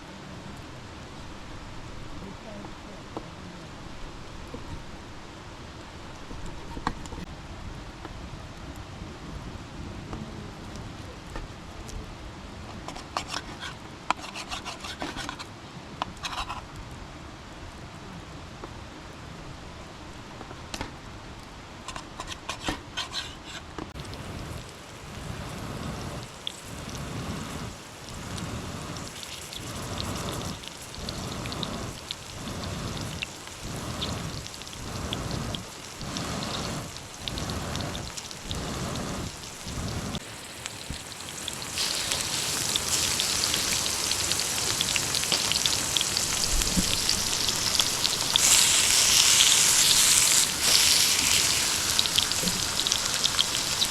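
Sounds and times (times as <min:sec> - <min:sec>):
heavy rain: 0:24.0 - 0:53.9.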